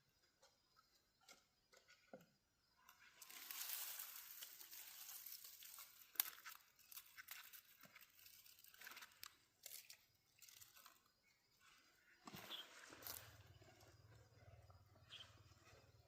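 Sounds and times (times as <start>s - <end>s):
dry material rustling and crackling: 3.1s - 11.0s.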